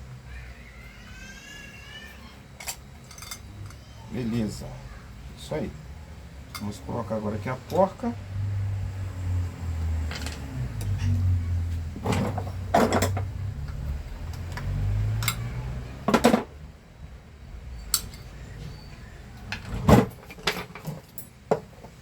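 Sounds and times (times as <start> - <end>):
small metal parts clicking: 2.6 - 3.9, 12.7 - 15.5, 17.9 - 18.3.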